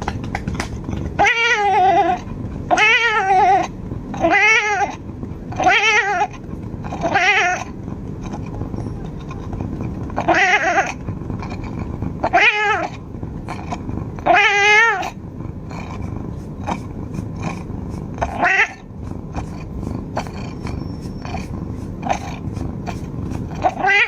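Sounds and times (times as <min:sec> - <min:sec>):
cat meowing: 0:01.2 - 0:05.0, 0:05.6 - 0:07.7, 0:10.2 - 0:11.0, 0:12.2 - 0:13.0, 0:14.2 - 0:15.2, 0:18.2 - 0:21.4, 0:22.0 - 0:24.0.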